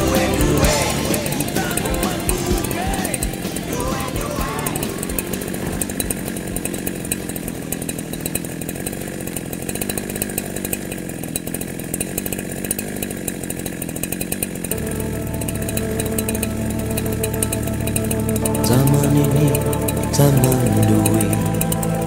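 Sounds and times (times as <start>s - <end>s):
music with held tones: 0.0s - 6.8s, 14.7s - 22.0s
chainsaw idling: 0.0s - 22.0s.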